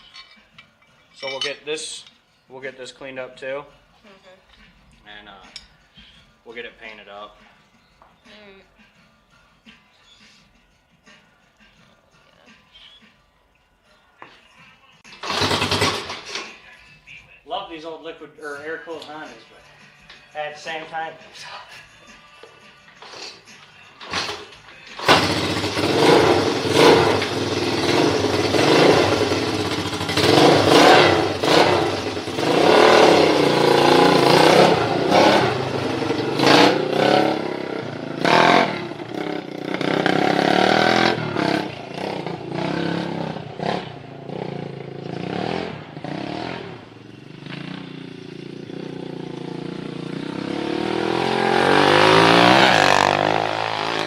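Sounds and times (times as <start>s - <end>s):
small engine revving: 25.0s - 35.6s.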